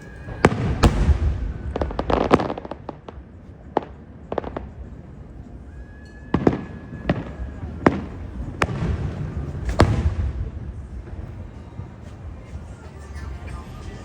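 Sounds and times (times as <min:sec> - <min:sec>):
firework whistle: 0:00.0 - 0:03.2, 0:03.8 - 0:10.3
fireworks crackling pops: 0:00.0 - 0:04.9, 0:06.3 - 0:12.7
fireworks bangs: 0:00.0 - 0:14.0.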